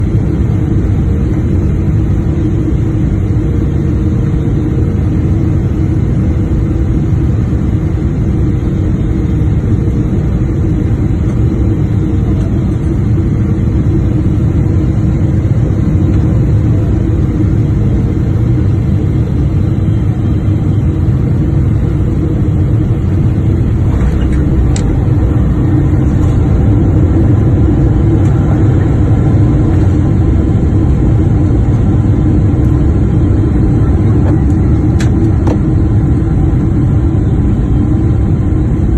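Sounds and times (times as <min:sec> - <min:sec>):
airplane engines rumbling: 0:00.0 - 0:38.9.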